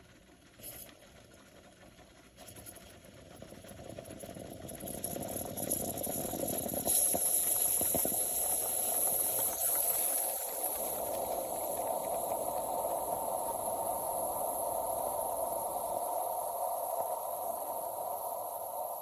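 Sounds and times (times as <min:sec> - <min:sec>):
espresso machine hissing steam: 0:04.8 - 0:19.0.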